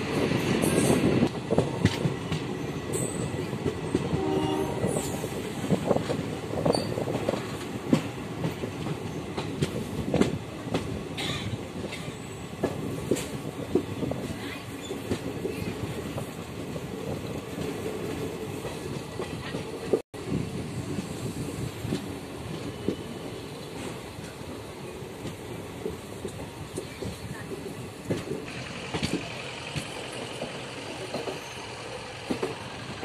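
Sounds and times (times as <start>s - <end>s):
rush of wind: 0.0s - 29.3s
train horn: 4.1s - 5.1s
train wheels clattering over joints: 21.7s - 33.0s.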